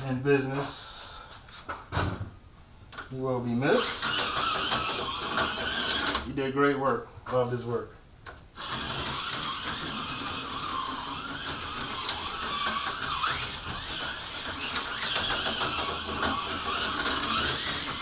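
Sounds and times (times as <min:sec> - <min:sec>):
slot car clicking on rails: 0:03.8 - 0:06.2, 0:08.6 - 0:18.0
small electric motor whine: 0:03.8 - 0:06.2, 0:08.6 - 0:18.0.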